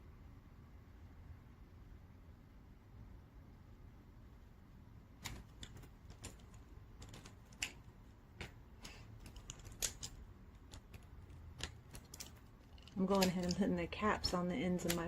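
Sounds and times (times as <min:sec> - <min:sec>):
pen caps clicking: 0:05.2 - 0:15.0.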